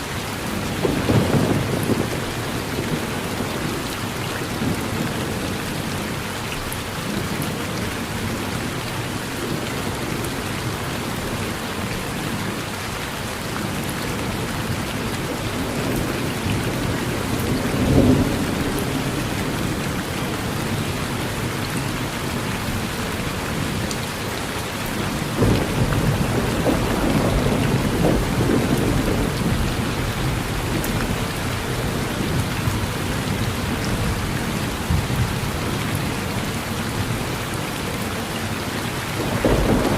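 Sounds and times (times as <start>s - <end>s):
thunder rumbling: 0.0s - 8.8s, 13.7s - 23.8s, 25.0s - 36.3s, 38.8s - 39.9s
rain falling on a porch: 0.0s - 39.9s.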